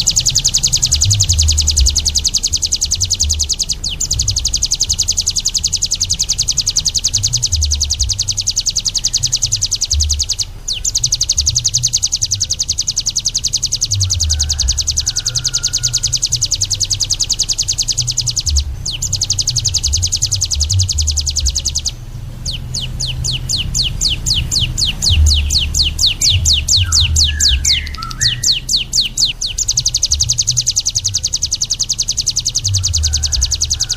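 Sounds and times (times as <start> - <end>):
low rumble: 0.0 - 31.8
songbird trilling: 0.0 - 33.9.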